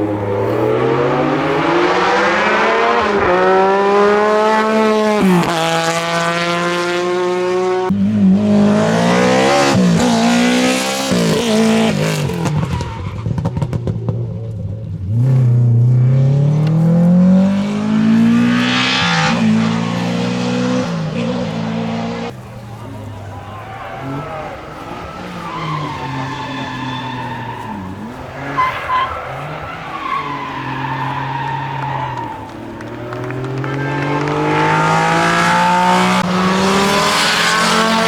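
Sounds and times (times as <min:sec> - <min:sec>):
rally car engine revving: 0:00.0 - 0:38.0
exhaust crackles and pops: 0:31.0 - 0:35.9.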